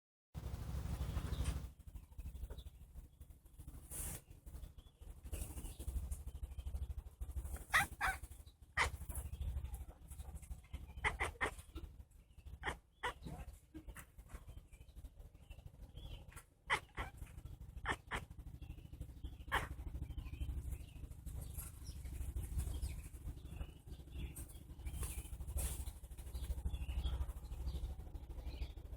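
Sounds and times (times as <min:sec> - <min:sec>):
steady low rumble: 0:00.4 - 0:28.9
cat chattering: 0:07.6 - 0:09.1, 0:10.9 - 0:11.9, 0:12.5 - 0:13.4, 0:16.6 - 0:18.4.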